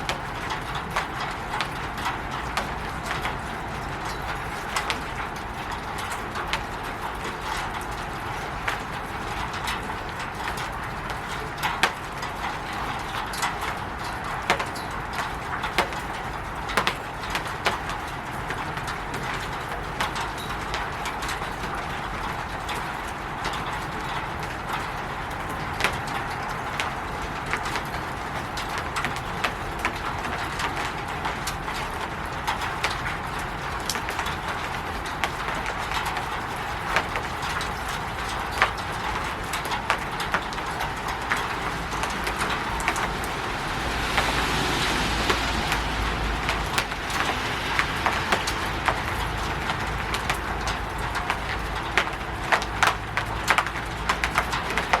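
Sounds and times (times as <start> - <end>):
rain pattering on a roof: 0.0 - 55.0
rushing swell: 41.4 - 49.6.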